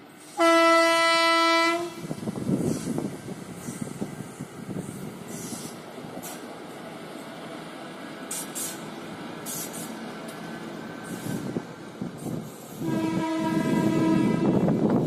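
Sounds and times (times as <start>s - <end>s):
train rumbling on track: 0.0s - 15.0s
high hissing bursts: 2.6s - 6.5s, 8.2s - 10.2s.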